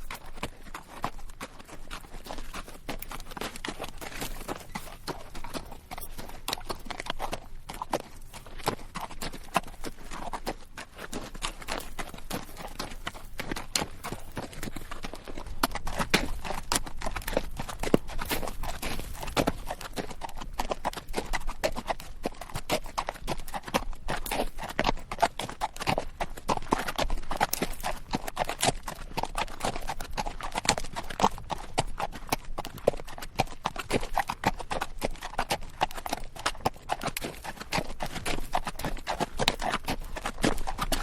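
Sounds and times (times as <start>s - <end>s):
saddle creaking: 0.0s - 7.1s
hooves clip-clopping on rocky dirt: 0.0s - 41.0s.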